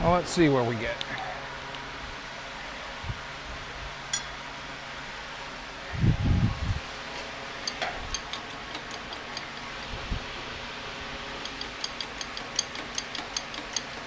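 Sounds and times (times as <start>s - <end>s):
sharp metallic ticks: 7.4s - 10.0s, 11.4s - 14.0s.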